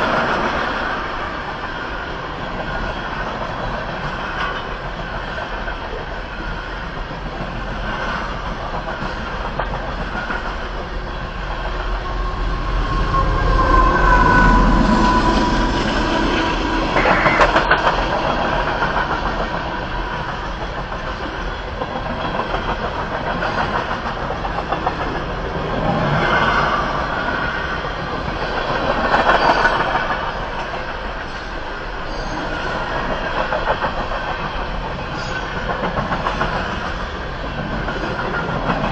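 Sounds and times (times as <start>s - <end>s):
brief high tone: 12.0s - 17.5s.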